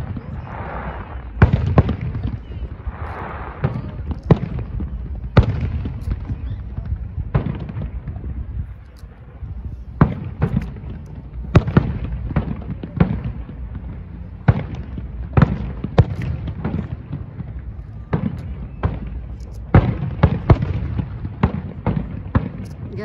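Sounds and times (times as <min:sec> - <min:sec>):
fireworks bursting with sharp bangs: 0:00.0 - 0:23.0
low rumble: 0:00.0 - 0:23.0.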